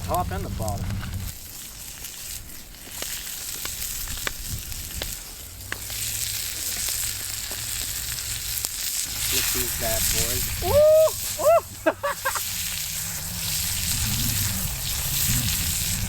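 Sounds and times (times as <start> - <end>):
beef sizzling over fire: 0.0 - 16.0
fire popping: 0.0 - 16.0.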